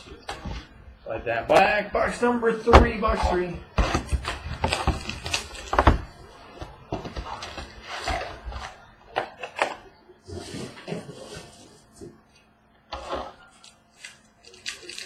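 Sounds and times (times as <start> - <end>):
foil packs rustling: 3.2 - 8.8, 13.0 - 15.0.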